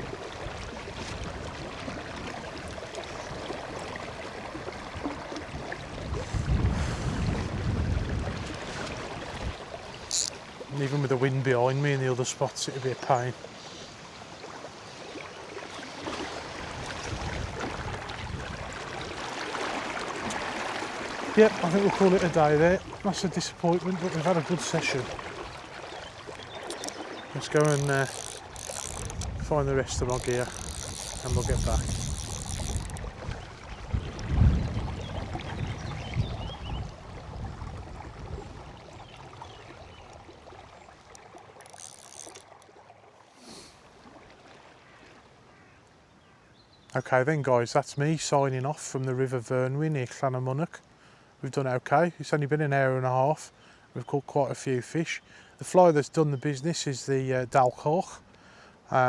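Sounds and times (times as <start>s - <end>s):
wind rumbling on microphone: 0.0s - 10.3s, 16.4s - 19.3s, 26.4s - 40.8s
river water flowing: 0.0s - 47.1s.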